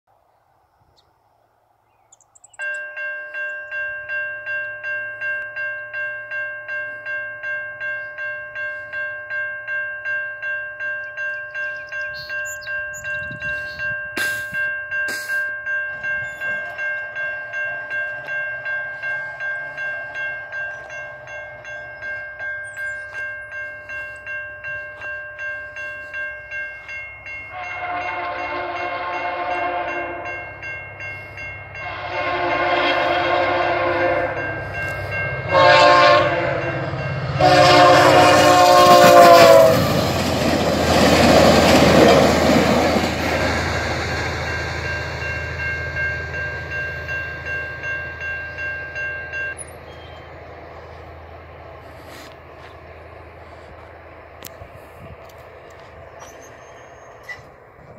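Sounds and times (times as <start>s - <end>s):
train passing wheel and engine noise: 0.1s - 57.9s
level-crossing bell ringing: 2.5s - 50.2s
train horn blasts: 27.4s - 30.6s, 31.7s - 40.1s.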